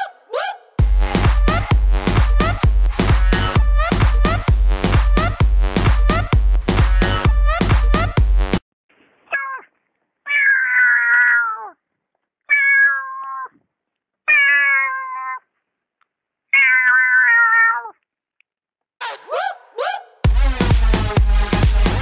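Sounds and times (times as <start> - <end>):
man imitating cat meow: 3.0 - 3.8, 6.7 - 7.7.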